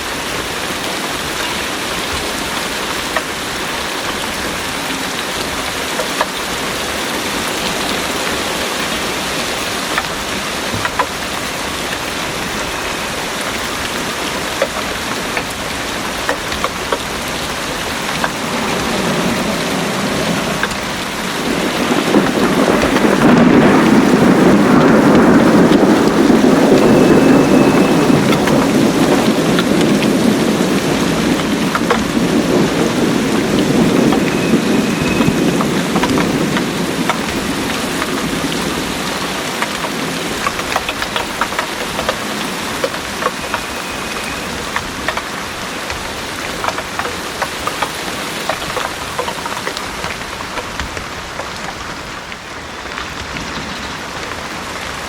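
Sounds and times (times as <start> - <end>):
heavy rain: 0.0 - 55.0
thunder rolling: 4.1 - 47.8.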